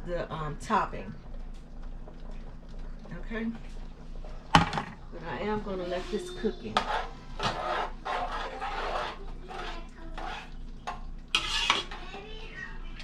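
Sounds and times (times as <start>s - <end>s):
spoon scraping a pot: 5.9s - 12.1s.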